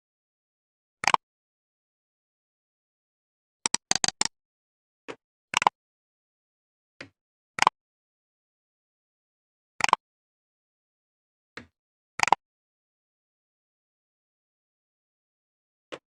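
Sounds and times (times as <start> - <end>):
computer keyboard clicking: 3.7 - 4.3.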